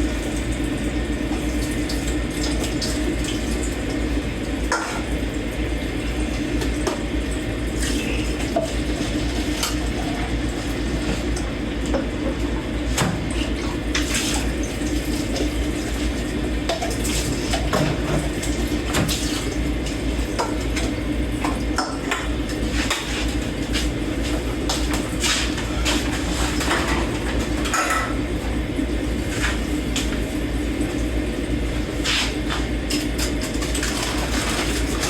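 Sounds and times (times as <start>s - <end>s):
water running in sink: 0.0s - 35.0s.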